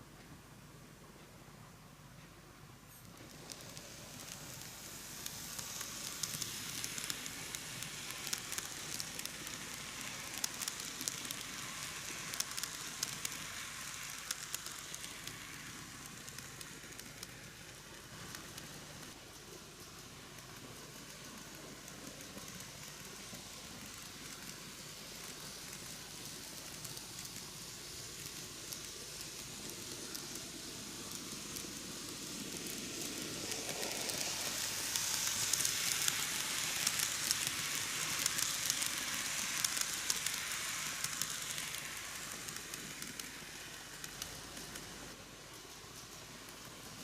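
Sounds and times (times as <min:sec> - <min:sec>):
model train wheels rattling: 0:02.9 - 0:47.0.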